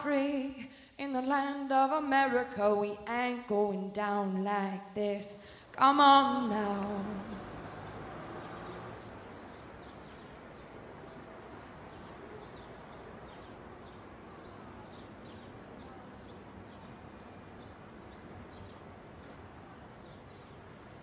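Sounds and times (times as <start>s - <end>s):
faint street background noise: 0.0s - 21.0s
small birds chirping: 6.6s - 21.0s.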